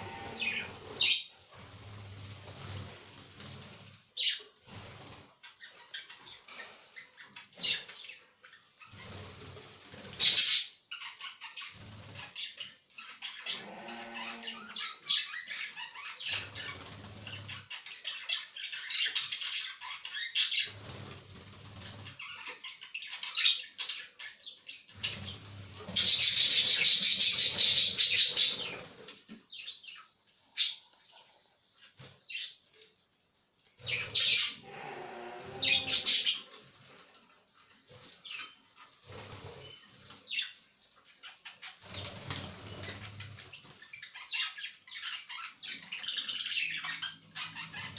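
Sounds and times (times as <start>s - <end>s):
budgies chirping: 0.0s - 32.6s, 33.8s - 36.6s, 38.0s - 47.9s
wings flapping: 41.8s - 43.8s.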